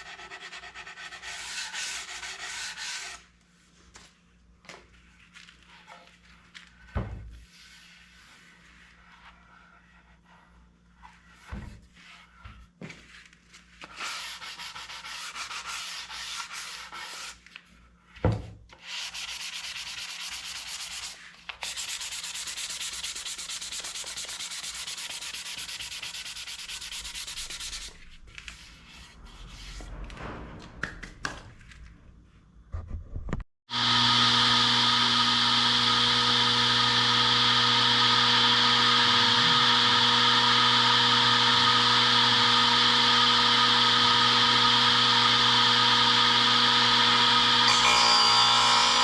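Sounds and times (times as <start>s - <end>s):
sanding wood: 0.0s - 3.2s, 14.0s - 17.4s, 18.8s - 28.1s.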